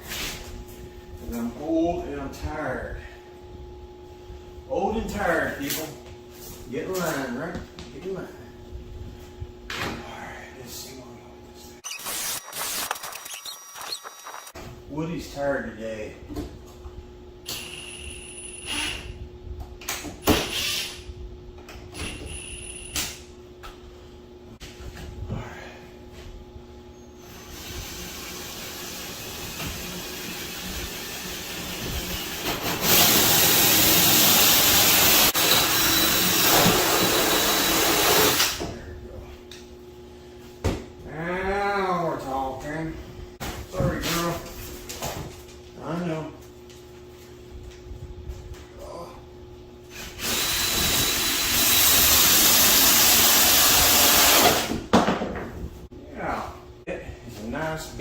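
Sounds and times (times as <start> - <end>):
electric power tool running: 27.4 - 38.6, 50.2 - 54.7.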